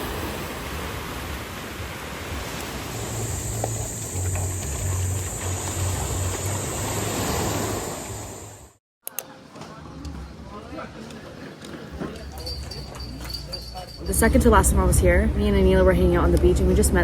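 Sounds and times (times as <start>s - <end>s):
rushing outdoor noise: 0.0s - 8.8s
background music bass: 2.9s - 7.0s.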